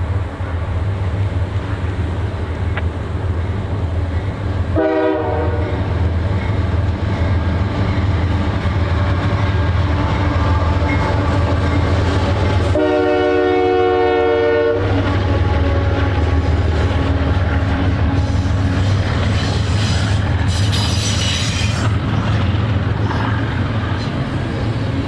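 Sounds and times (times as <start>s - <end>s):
locomotive engine rumble: 0.0s - 25.0s
train air horn blasts: 4.8s - 5.8s, 12.6s - 15.0s.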